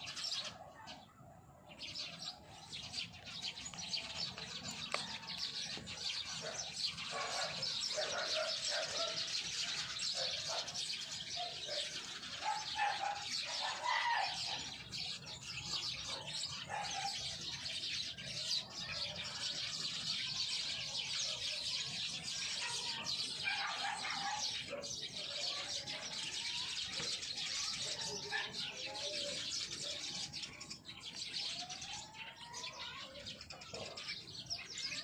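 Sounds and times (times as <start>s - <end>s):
chorus of small birds chirping: 0.0s - 35.0s.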